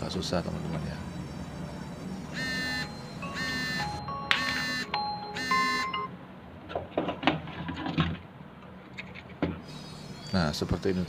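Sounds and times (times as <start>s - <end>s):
buzzy electronic melody: 0.0s - 6.1s.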